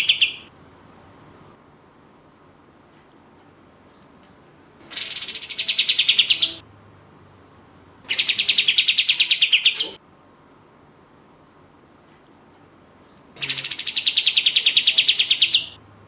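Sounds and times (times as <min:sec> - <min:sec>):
bird rapid rattling song: 0:00.0 - 0:00.5, 0:04.9 - 0:06.6, 0:08.1 - 0:10.0, 0:13.0 - 0:15.8.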